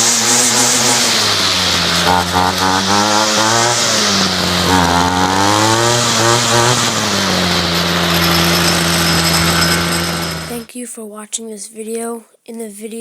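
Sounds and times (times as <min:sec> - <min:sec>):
string trimmer engine revving: 0:00.0 - 0:10.7.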